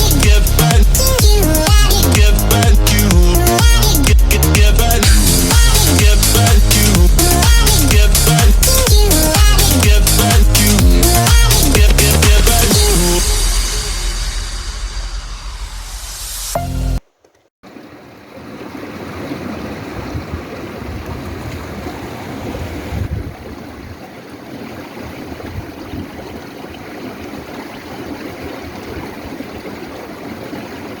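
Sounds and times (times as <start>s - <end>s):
electronic background music: 0.0s - 15.2s, 16.0s - 17.0s
stream water running: 17.1s - 31.0s.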